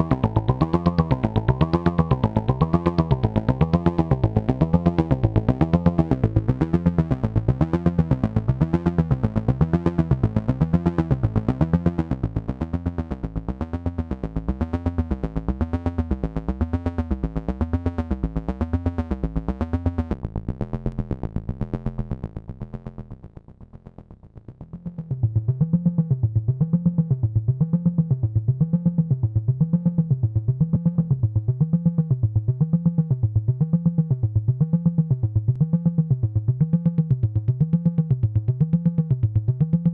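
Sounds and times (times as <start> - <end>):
pulsing wobbling synthesizer note: 0.0 - 5.0.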